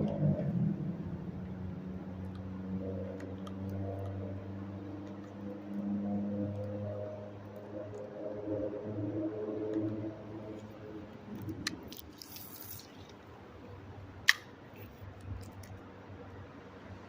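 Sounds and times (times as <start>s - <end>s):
low steady hum: 0.0s - 17.0s
sharp clicks: 14.2s - 15.8s.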